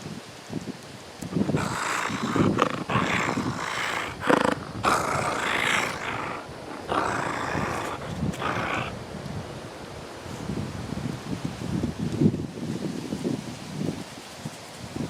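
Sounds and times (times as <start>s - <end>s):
coyote making rough vocal sounds: 1.2s - 9.5s.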